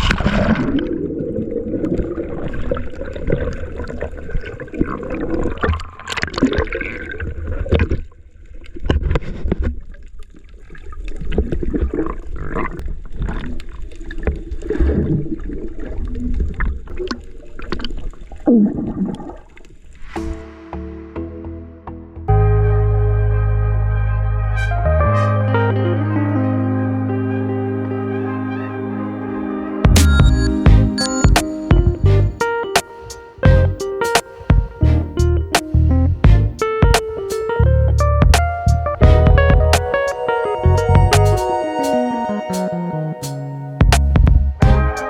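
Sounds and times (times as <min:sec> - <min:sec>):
muffled low sounds: 0:33.5 - 0:33.8, 0:37.6 - 0:44.9.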